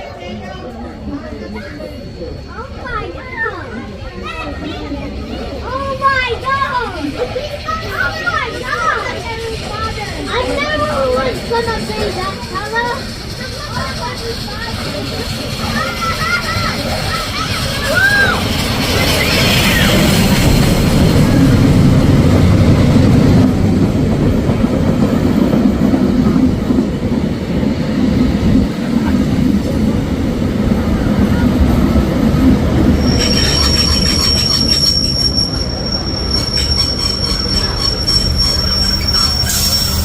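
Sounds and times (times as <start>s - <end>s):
train wheels rumbling on track: 0.0s - 40.0s
high-pitched brake squeal: 15.8s - 20.9s, 32.9s - 40.0s.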